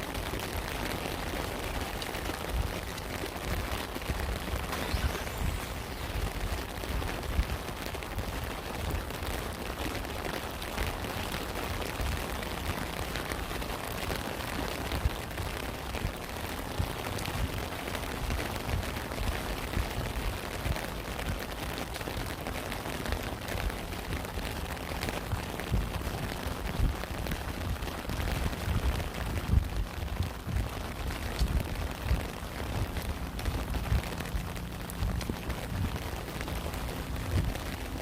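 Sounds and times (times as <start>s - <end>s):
rain falling: 0.0s - 38.0s
sharp drop impacts: 4.6s - 6.6s.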